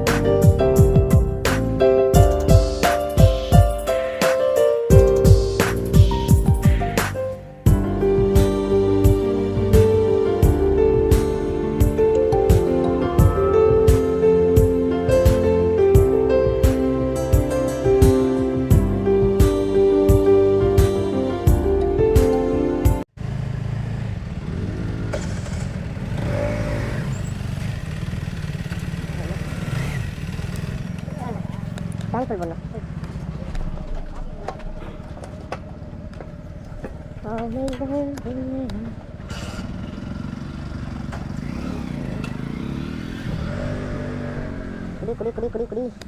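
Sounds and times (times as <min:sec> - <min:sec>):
motorcycle engine rumble: 0:00.0 - 0:04.0, 0:23.1 - 0:46.0
background guitar music: 0:00.0 - 0:23.0.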